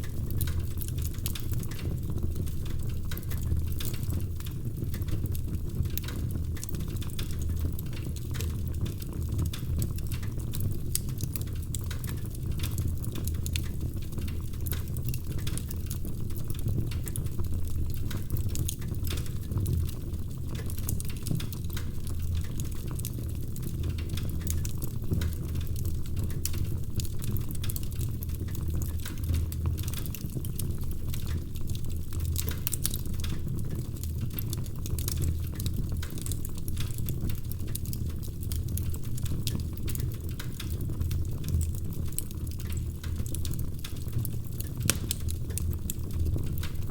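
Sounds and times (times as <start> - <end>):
wood fire crackling and popping: 0.0 - 46.9.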